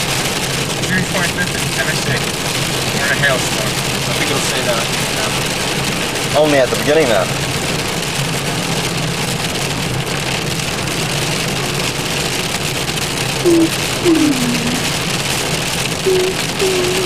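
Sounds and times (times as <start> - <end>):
rain on car roof: 0.0 - 17.0
short pitched sounds: 13.4 - 15.0, 16.1 - 17.0.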